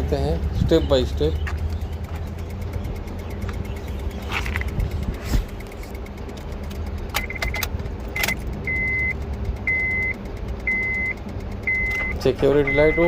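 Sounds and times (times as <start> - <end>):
car keys jangling in ignition: 0.6 - 8.8, 11.7 - 13.0
car warning chime beeping: 7.0 - 13.0.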